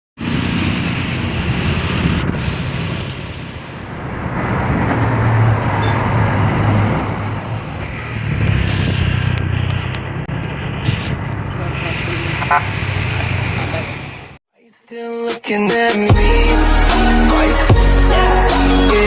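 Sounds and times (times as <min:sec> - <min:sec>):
bus diesel engine humming: 0:00.2 - 0:14.4.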